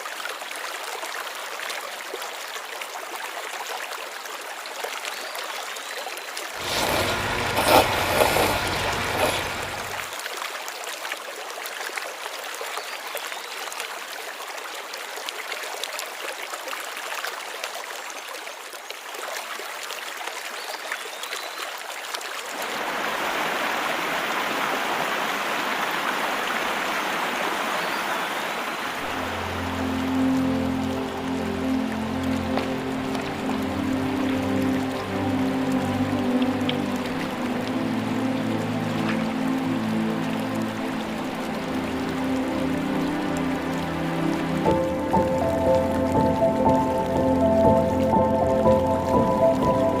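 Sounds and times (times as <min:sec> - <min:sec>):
creek rushing over stones: 0:00.0 - 0:50.0.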